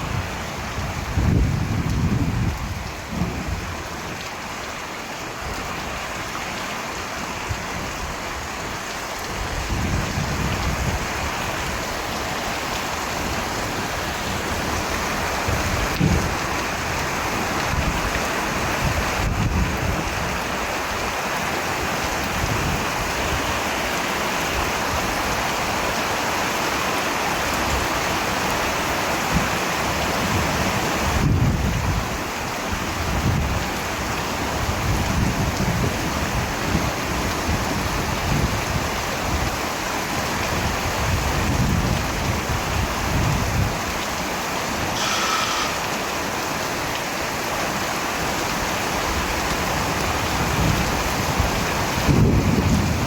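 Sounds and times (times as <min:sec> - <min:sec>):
heavy rain: 0:00.0 - 0:53.0
faint whistle-like tone: 0:45.0 - 0:45.8.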